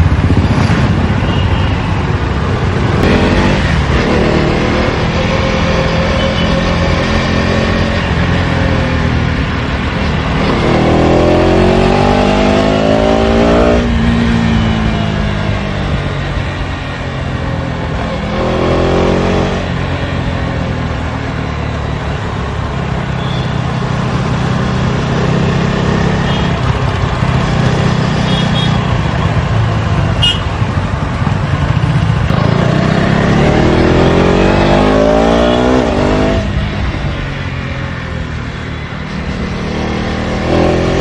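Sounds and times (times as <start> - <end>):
motorcycle engine revving: 2.7 - 16.2, 18.0 - 20.2, 24.1 - 37.4, 39.0 - 41.0.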